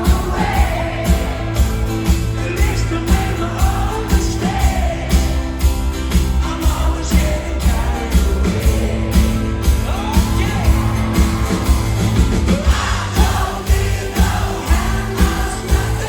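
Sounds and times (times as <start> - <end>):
rock band playing live: 0.0 - 16.0
steady drum beat: 0.0 - 16.0
person singing: 12.5 - 16.0.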